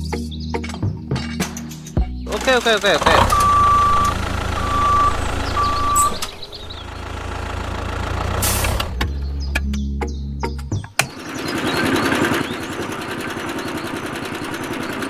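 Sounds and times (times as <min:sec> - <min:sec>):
low engine rumble: 0:02.0 - 0:15.0
vehicle reversing alarm beeping: 0:03.0 - 0:07.4.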